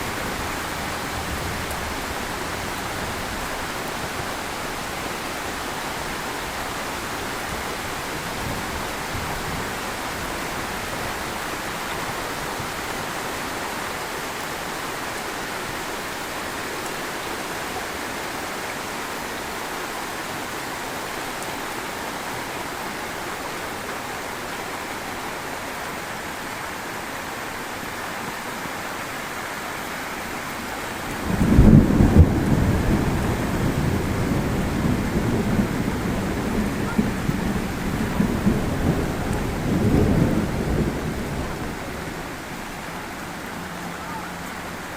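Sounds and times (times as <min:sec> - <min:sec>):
heavy rain falling: 0:00.0 - 0:44.9
thunderclap rumbling: 0:31.0 - 0:43.4.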